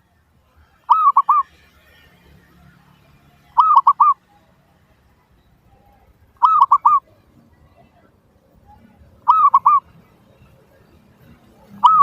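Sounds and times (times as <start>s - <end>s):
dove cooing: 0.9s - 1.5s, 3.6s - 4.2s, 6.4s - 7.1s, 9.2s - 10.0s, 11.6s - 12.0s.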